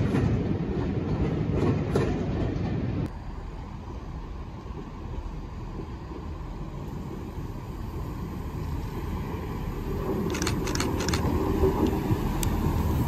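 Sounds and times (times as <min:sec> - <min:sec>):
diesel train rumble: 0:00.0 - 0:13.0
sharp clicks: 0:10.3 - 0:12.6.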